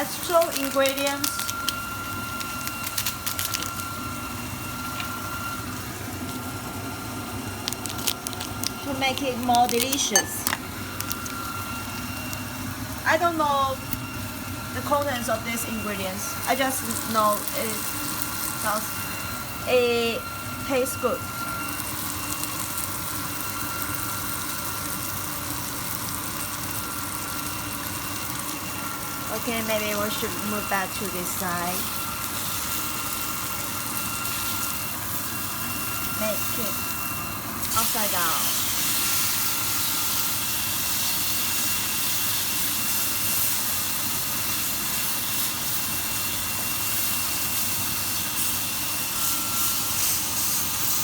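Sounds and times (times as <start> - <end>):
constant hum: 0.0 - 21.2
cooking hiss on stove: 0.0 - 51.0
meat sizzling in a hot pan: 0.0 - 51.0.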